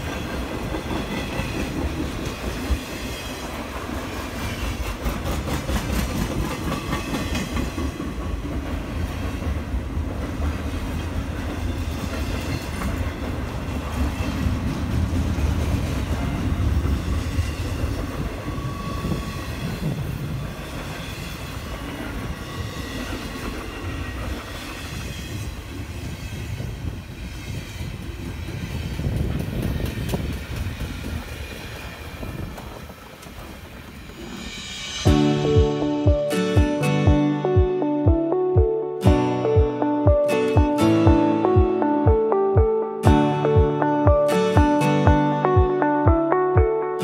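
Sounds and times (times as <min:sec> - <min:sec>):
freight train wheels rumbling: 0:00.0 - 0:35.8.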